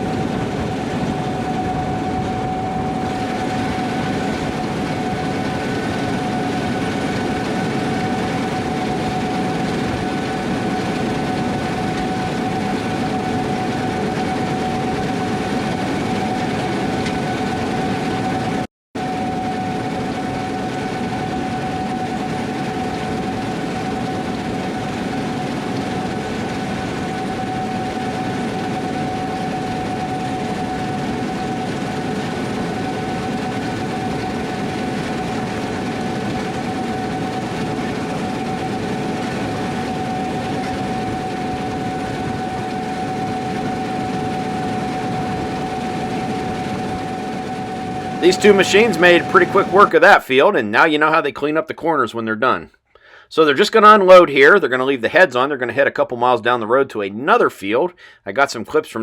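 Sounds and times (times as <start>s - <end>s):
combine harvester drone with whine: 0.0s - 51.6s.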